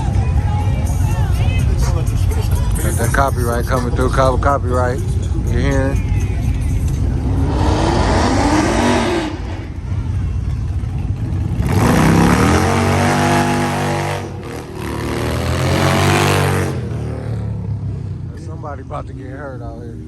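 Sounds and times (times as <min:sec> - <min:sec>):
car engine revving: 0:06.6 - 0:10.2, 0:11.1 - 0:19.9.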